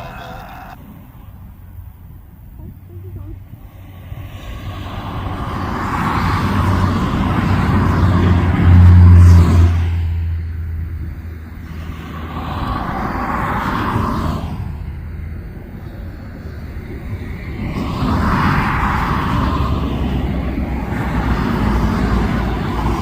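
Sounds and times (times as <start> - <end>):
deep engine rumble: 0.0 - 23.0.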